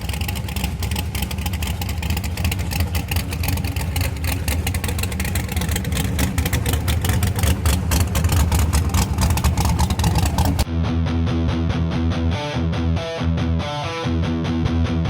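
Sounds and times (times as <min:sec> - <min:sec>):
car engine running loud: 0:00.0 - 0:10.7
rock music with electric guitar: 0:10.2 - 0:15.0.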